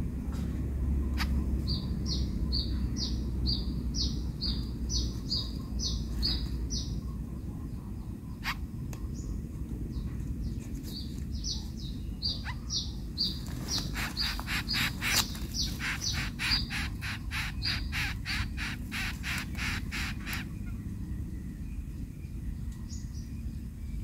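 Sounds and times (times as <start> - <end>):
steady low rumble: 0.0 - 24.0
bird calling harsh notes: 13.6 - 20.7.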